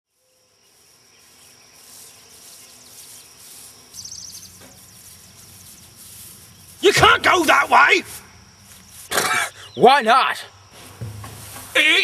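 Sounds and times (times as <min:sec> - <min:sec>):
high-pitched insect drone: 0:00.1 - 0:09.1.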